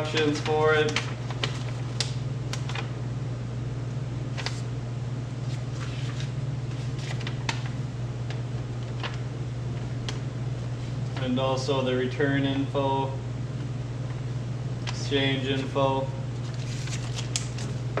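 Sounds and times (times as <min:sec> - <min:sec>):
paper rustling: 0:00.0 - 0:02.9, 0:04.3 - 0:04.7, 0:05.4 - 0:09.2, 0:16.4 - 0:17.8
steady low hum: 0:00.0 - 0:18.0.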